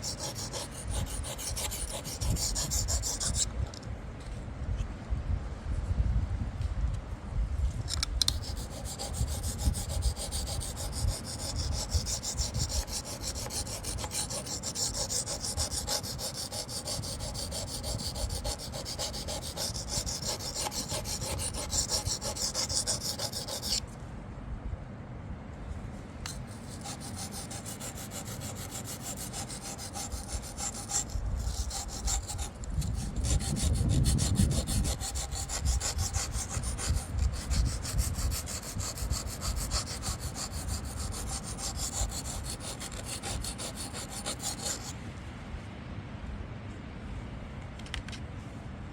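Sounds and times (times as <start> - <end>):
knife rasping on sharpening stone: 0.0 - 3.4, 8.3 - 23.8, 26.3 - 44.9.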